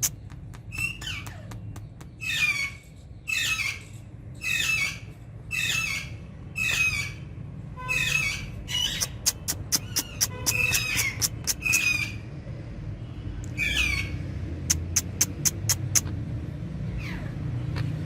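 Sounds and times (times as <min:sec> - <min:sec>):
parakeet squawking: 0:02.2 - 0:03.8, 0:04.4 - 0:07.2, 0:07.9 - 0:12.2
sharp bird chirps: 0:08.1 - 0:12.2.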